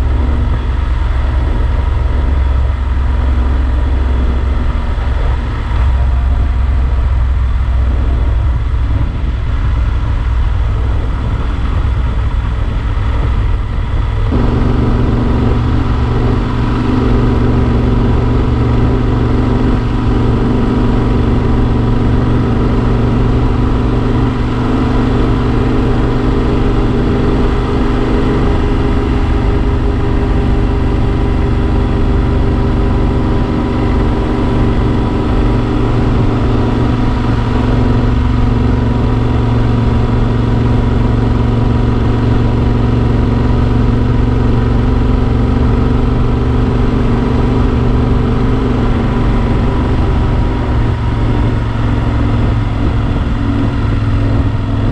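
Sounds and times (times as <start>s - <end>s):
motorcycle engine running: 0.0s - 54.9s
wind noise on camera: 0.0s - 54.9s.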